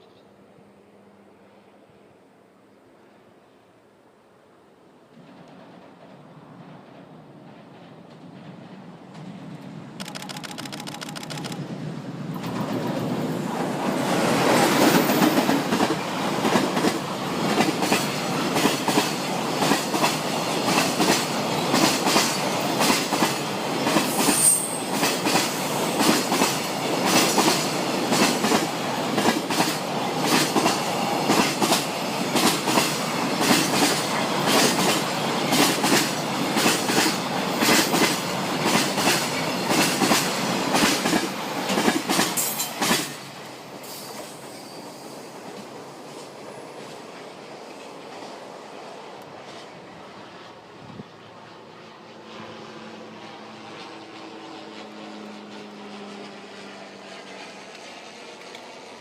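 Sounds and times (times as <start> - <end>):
train wheels clickety-clack: 5.1 - 11.6, 12.3 - 48.5, 49.2 - 49.8, 57.1 - 59.0.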